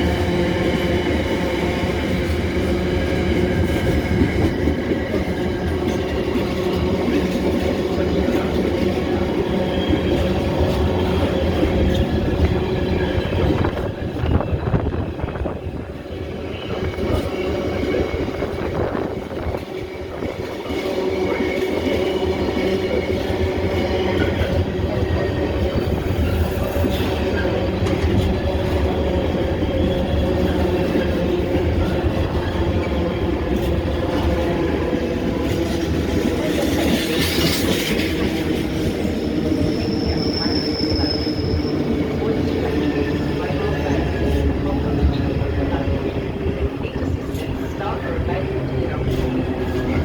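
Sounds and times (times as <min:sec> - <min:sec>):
train rumbling on rails: 0:00.0 - 0:50.0
wheels clickety-clack: 0:19.2 - 0:42.8.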